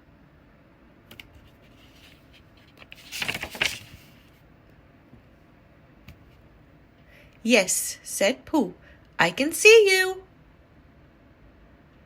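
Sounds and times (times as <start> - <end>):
book page turning: 1.4 - 4.4.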